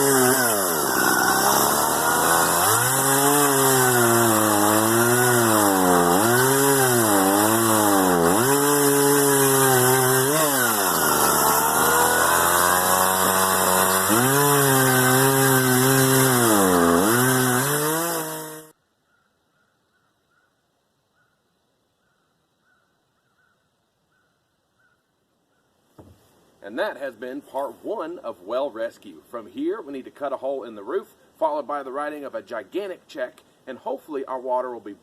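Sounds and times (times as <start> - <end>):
chainsaw cutting wood: 0.0 - 18.7.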